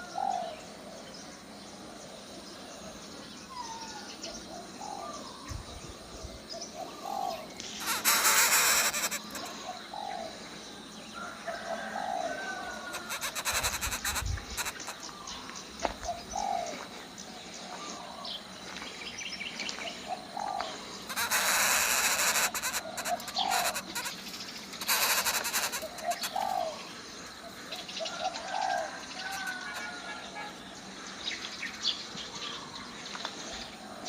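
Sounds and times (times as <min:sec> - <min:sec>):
coucal calling: 0:07.0 - 0:09.7, 0:12.8 - 0:15.1, 0:21.1 - 0:26.8, 0:28.8 - 0:30.2.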